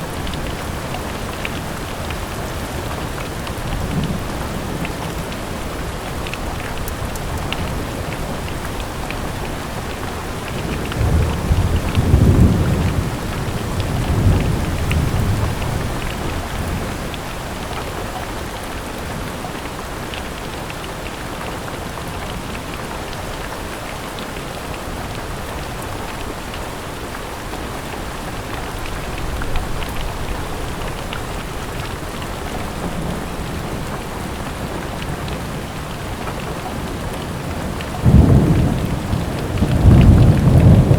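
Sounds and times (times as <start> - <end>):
thunder rumbling: 0.0 - 17.2, 28.7 - 40.9
rain falling: 0.0 - 40.9.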